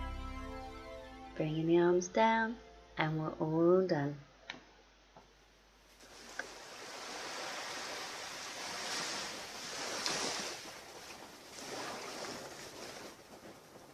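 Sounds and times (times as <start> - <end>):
waves washing onto beach: 6.0 - 13.9.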